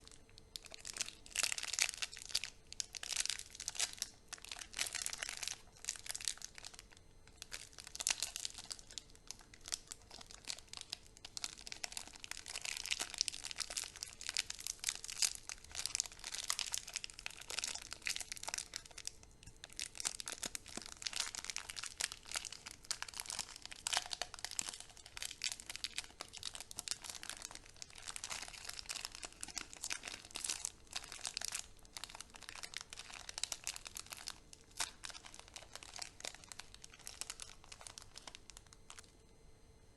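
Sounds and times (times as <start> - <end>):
candy wrappers crinkling: 0.0 - 39.1.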